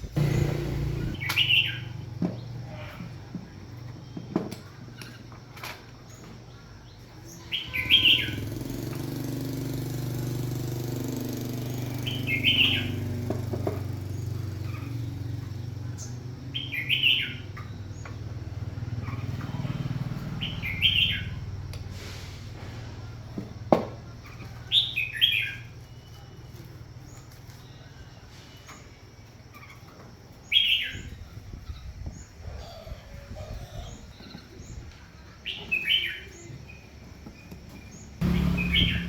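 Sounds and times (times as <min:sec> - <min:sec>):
low hum: 0:00.0 - 0:01.2
bird chirping: 0:00.0 - 0:02.5, 0:06.1 - 0:09.3, 0:11.9 - 0:21.5, 0:29.5 - 0:39.0.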